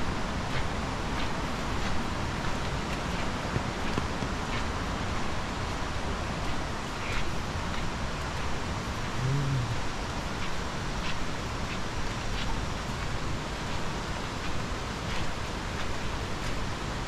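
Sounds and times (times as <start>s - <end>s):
rushing water: 0.0s - 17.0s
brief low call: 9.2s - 9.8s.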